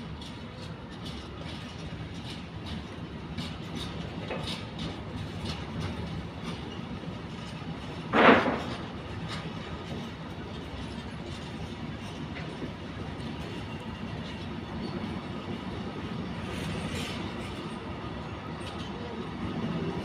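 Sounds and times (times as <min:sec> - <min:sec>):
train rumbling: 0:00.0 - 0:20.0
wheels clicking over rail joints: 0:00.0 - 0:20.0
loud blast of noise: 0:08.1 - 0:08.8.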